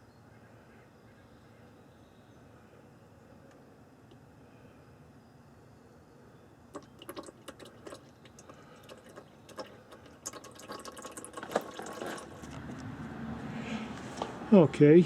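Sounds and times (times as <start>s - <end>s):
oil dripping into pan: 6.7s - 12.6s.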